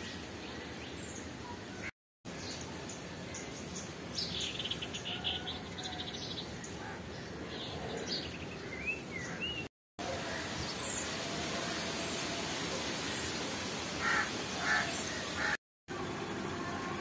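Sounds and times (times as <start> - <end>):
small birds chirping: 0.0 - 9.7
steady outdoor hiss: 0.0 - 17.0.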